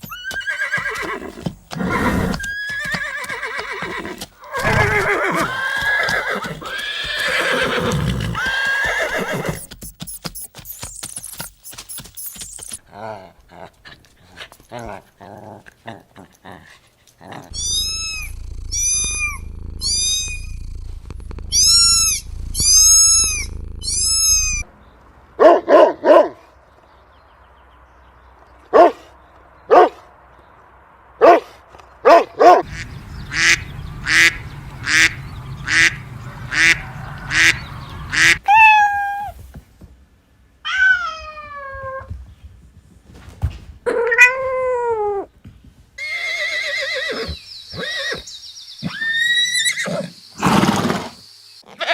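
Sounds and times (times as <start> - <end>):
cats meowing: 3.1 - 9.6, 17.5 - 24.6, 36.5 - 39.4.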